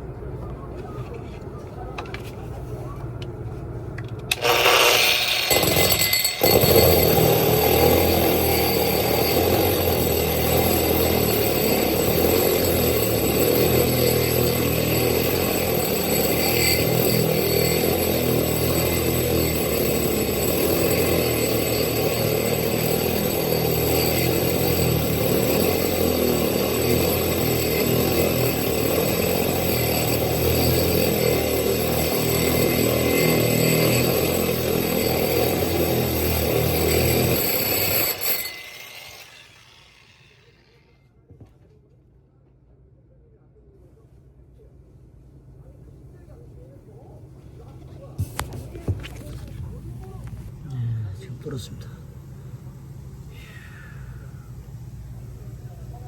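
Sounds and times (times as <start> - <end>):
power drill grinding through glass: 4.3 - 40.9.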